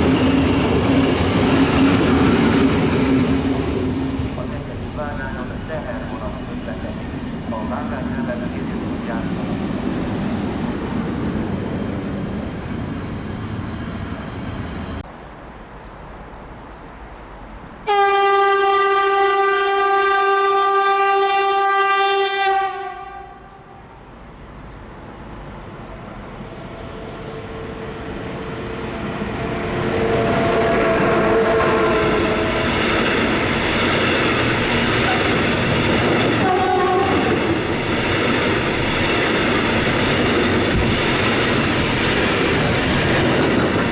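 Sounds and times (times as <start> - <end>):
train wheels clattering: 0.0 - 4.6, 30.2 - 43.9
train horn blast: 17.9 - 23.9, 26.9 - 32.8, 36.4 - 37.6.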